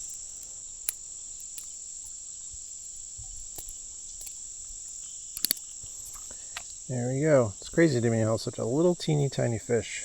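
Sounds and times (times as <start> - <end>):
insect chorus buzzing: 0.0 - 10.0
sharp clicks: 5.4 - 5.8.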